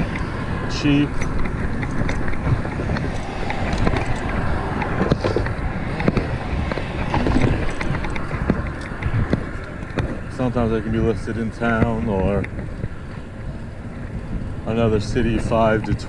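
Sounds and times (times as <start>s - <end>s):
bicycle road noise: 0.0s - 16.0s
wind on microphone: 0.0s - 16.0s
small clicks and knocks: 1.1s - 10.6s.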